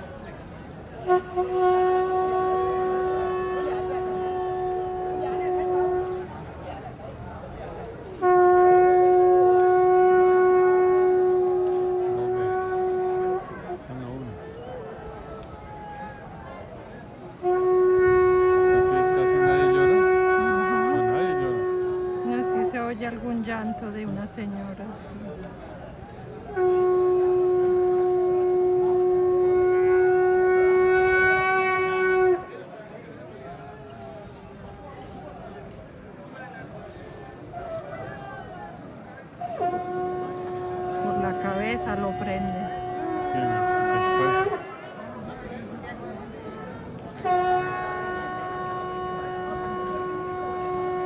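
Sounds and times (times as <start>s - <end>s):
conch shell blown: 1.0s - 6.4s, 8.1s - 24.2s, 26.3s - 32.6s, 39.4s - 45.6s, 46.6s - 51.0s.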